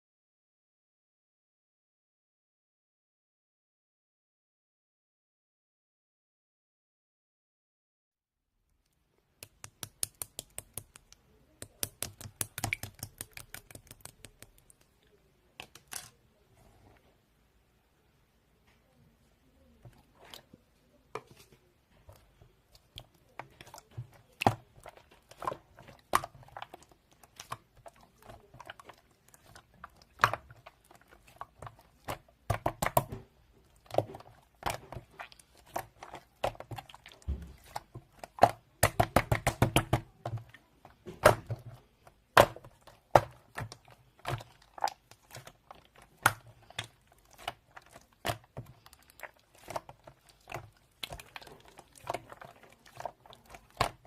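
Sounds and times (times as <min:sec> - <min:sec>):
slime clicking and popping: 0:09.4 - 0:15.0.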